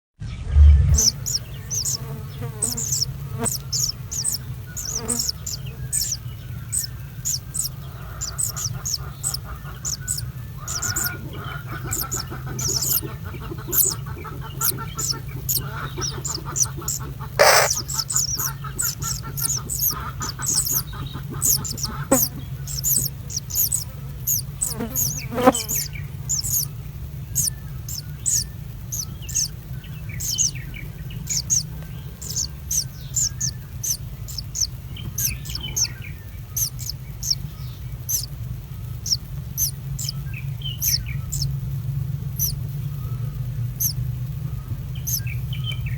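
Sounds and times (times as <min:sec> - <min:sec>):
steady low hum: 0:00.2 - 0:45.9
small birds chirping: 0:00.3 - 0:45.9.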